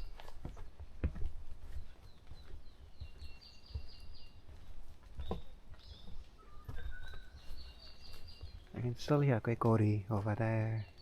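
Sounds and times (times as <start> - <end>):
soft low thumps: 0.0 - 10.3
songbirds singing: 0.0 - 11.0.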